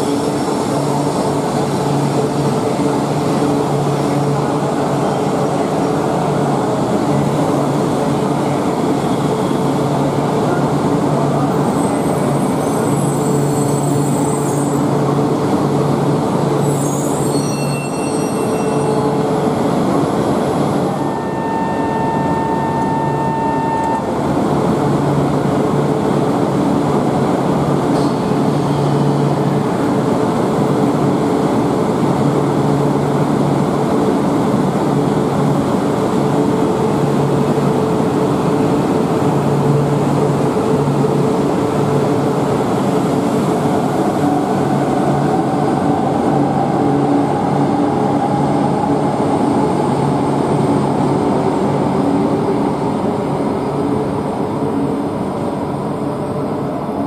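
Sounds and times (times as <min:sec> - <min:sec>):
train rumble and motor hum: 0:19.1 - 0:57.0.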